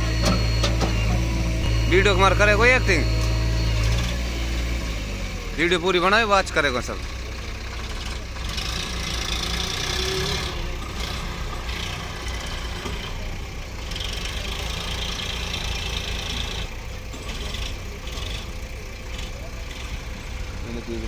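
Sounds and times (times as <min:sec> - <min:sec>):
diesel engine rumbling: 0:00.0 - 0:21.0.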